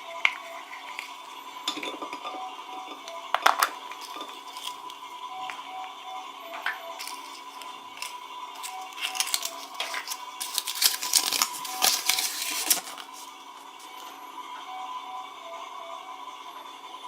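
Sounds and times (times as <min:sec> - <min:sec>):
packaging wrapper crinkling and tearing: 0:07.0 - 0:13.3.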